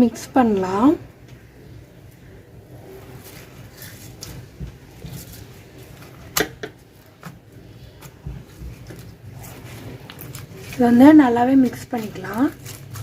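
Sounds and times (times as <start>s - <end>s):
slime crackling with beads: 8.7s - 13.0s.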